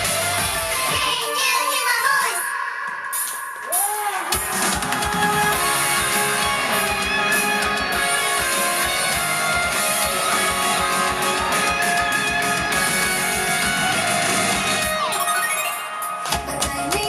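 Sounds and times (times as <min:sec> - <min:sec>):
rock band playing: 0:00.0 - 0:01.0, 0:04.3 - 0:16.6
drums: 0:00.0 - 0:17.0
strummed electric guitar: 0:04.4 - 0:15.1.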